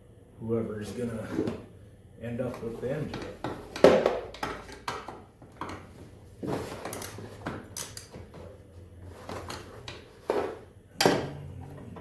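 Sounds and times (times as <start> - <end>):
metal tools clinking: 6.6 - 8.2.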